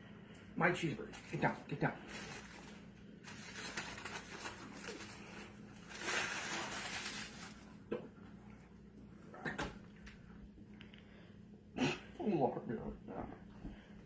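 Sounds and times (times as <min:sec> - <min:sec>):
rustling and crinkling: 0:01.0 - 0:08.0.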